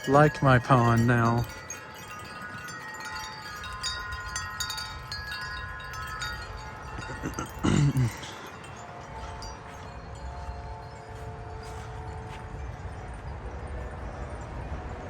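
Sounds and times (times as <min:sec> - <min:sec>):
wind chimes ringing: 0:00.0 - 0:13.3.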